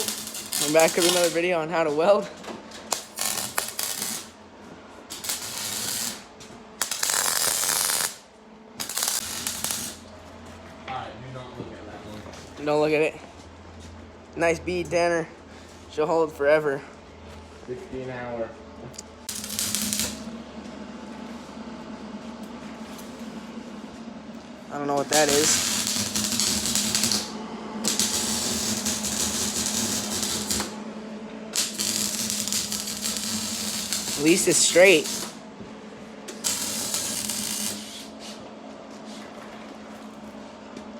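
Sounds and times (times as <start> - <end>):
arc welding crackling: 0.0 - 2.2, 2.8 - 4.4, 5.1 - 10.1, 19.2 - 20.3, 24.7 - 30.8, 31.5 - 35.4, 36.3 - 38.2
steady hum: 0.0 - 40.9.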